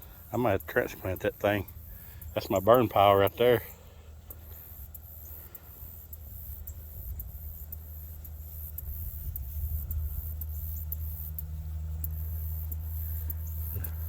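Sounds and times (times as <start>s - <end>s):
faint high ticking: 0.0s - 14.0s
wind rumble on microphone: 8.8s - 10.8s.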